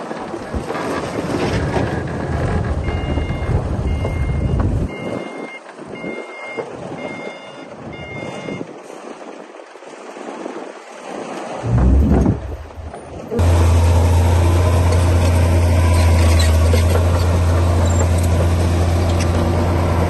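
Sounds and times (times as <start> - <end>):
bulldozer diesel engine: 0.4 - 8.5, 11.6 - 20.0
reversing alarm beeping: 2.8 - 8.7.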